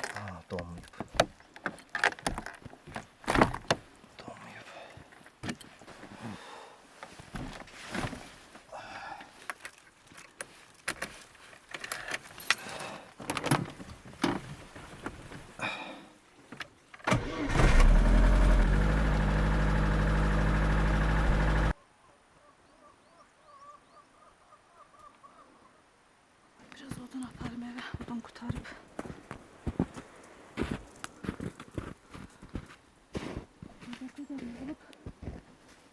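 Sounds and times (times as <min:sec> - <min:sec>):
vehicle engine cranking and idling: 0:17.1 - 0:21.8.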